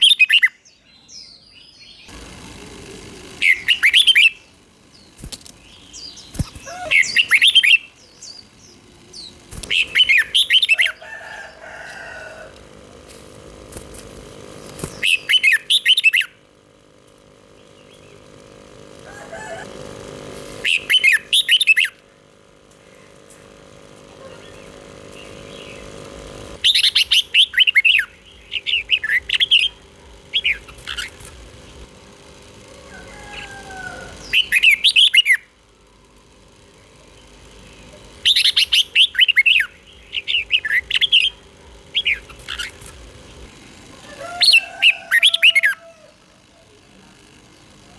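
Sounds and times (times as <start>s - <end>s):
bird singing whistled notes: 26.6s - 29.8s.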